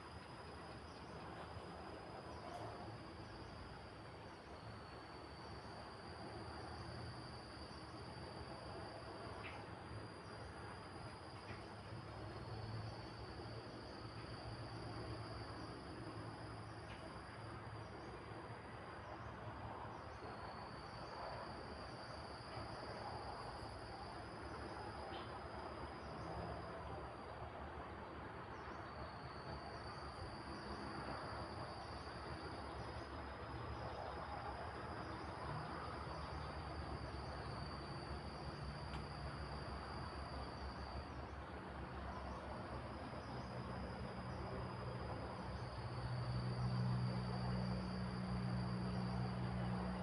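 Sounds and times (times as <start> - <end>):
crickets trilling: 0.0 - 50.0.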